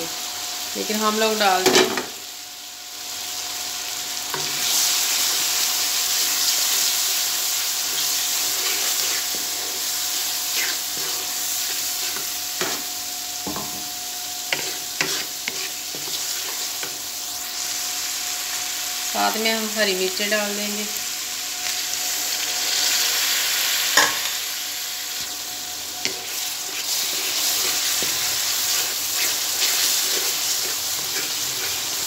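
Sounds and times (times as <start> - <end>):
spices sizzling in hot oil: 0.0 - 32.0
wooden spoon scraping and knocking pan: 14.6 - 17.0.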